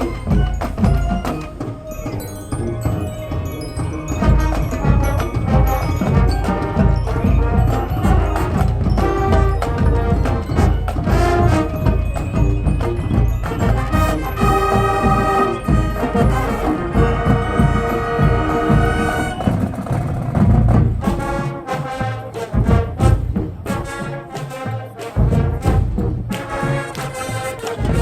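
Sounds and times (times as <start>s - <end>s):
marching band brass: 0.0s - 28.0s
drum hits: 3.7s - 21.5s.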